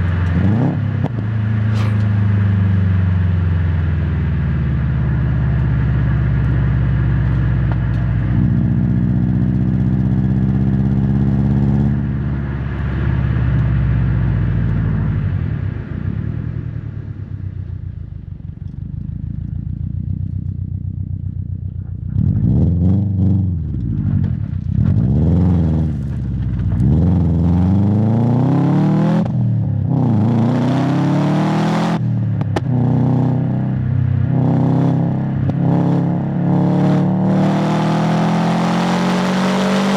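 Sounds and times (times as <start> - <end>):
exhaust cracks: 0.0 - 2.6, 11.9 - 28.0
car engine exhaust revving: 21.0 - 39.9.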